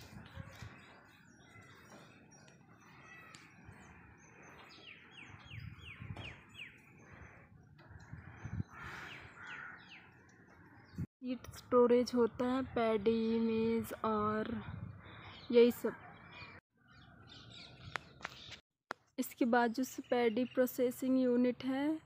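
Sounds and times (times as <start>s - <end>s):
birds chirping: 0.0s - 11.1s, 14.8s - 18.6s.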